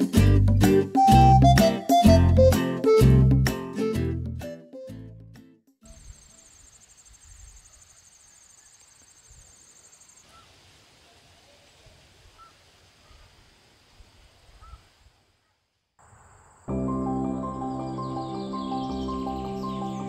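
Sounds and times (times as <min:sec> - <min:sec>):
insect trill: 0:05.9 - 0:10.7, 0:16.0 - 0:16.8
bird chirps: 0:17.2 - 0:20.0.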